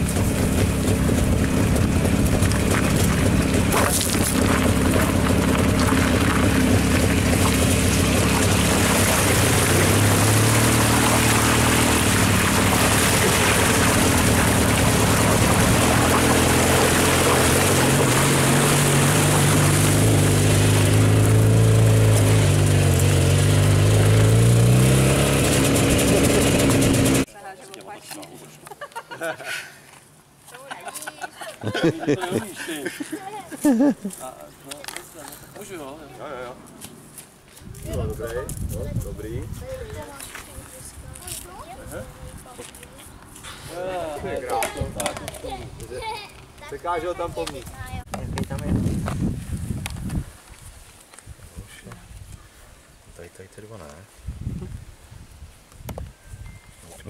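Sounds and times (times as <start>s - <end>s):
tyres crunching over gravel: 0.0s - 27.1s
two-stroke engine running: 0.0s - 27.3s
tyres splashing through water: 0.0s - 27.3s.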